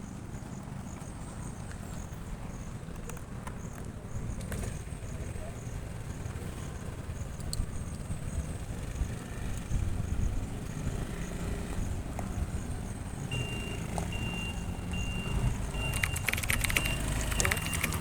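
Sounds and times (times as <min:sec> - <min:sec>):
low vehicle rumble: 0:00.0 - 0:18.0
high electronic beeping: 0:13.3 - 0:18.0.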